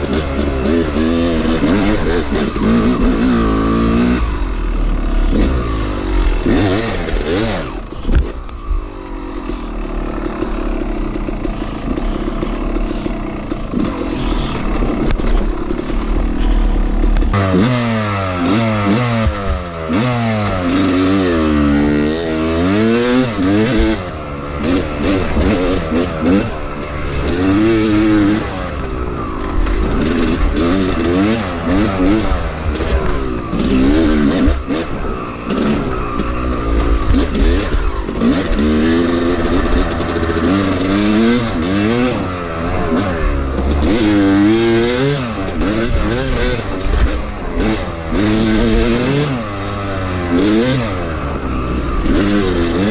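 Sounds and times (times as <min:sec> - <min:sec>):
two-stroke dirt bike engine revving: 0:00.0 - 0:52.9
bike knocks and rattles: 0:06.4 - 0:08.6, 0:10.1 - 0:17.7.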